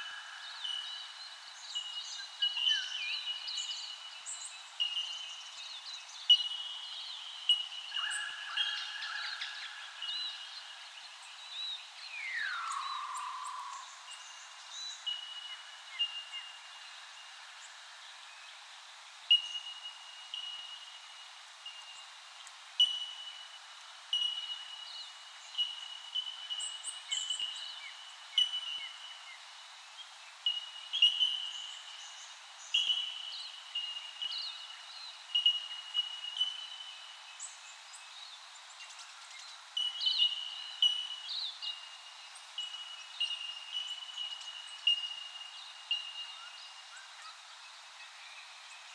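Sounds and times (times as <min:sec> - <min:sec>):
whistled bird notes: 0:12.2 - 0:16.5.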